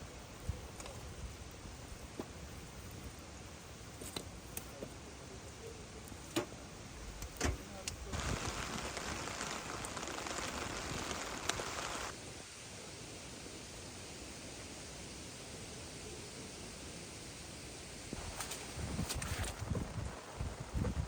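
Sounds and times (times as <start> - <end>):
rain hiss: 0.0 - 21.0
rain drips and taps: 7.2 - 12.1.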